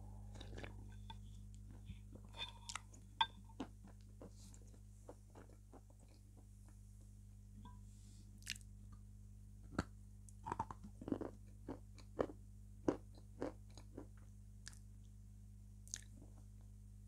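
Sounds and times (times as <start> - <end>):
low hum: 0.0 - 11.0
person chewing soft food: 0.1 - 6.6, 8.4 - 9.0, 9.7 - 15.1, 15.8 - 16.6.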